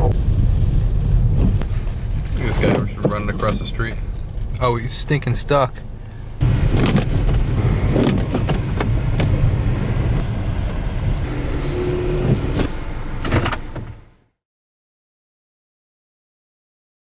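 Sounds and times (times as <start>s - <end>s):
car rumble: 0.0s - 14.3s
knocks and clicks: 6.4s - 11.3s.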